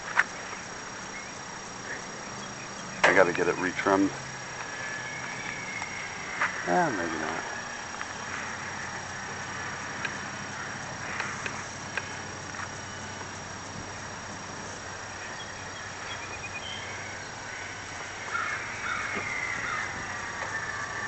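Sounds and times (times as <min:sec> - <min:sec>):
model plane motor whine: 0:03.3 - 0:21.0.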